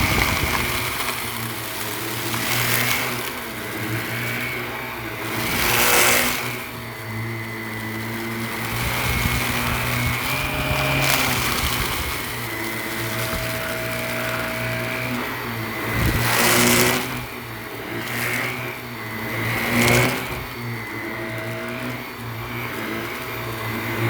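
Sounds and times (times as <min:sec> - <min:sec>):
vacuum cleaner on carpet: 0:00.0 - 0:24.0.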